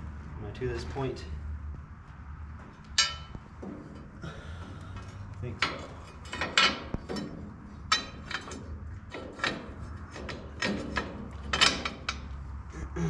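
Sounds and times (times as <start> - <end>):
metal tools clinking: 3.0 - 4.1, 4.7 - 12.4.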